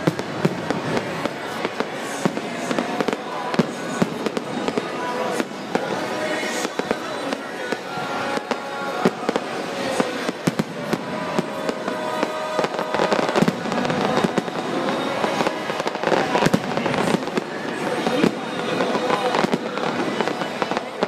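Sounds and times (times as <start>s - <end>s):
fireworks bangs and cracks: 0.0s - 21.0s
music playing: 0.0s - 21.0s.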